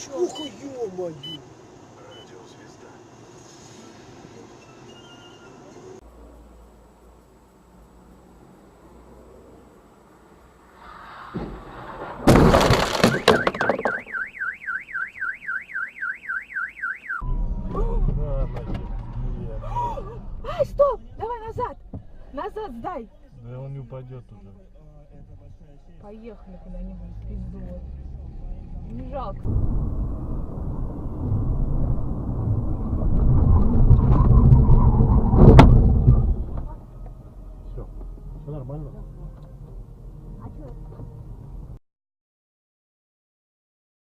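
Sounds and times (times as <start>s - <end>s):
vehicle engine rumble: 0.0s - 14.9s, 17.2s - 41.8s
road noise: 0.0s - 41.8s
car crash impact: 10.8s - 14.3s, 29.5s - 37.0s
debris crunching and clattering: 12.0s - 14.1s
car alarm wailing: 12.8s - 18.1s.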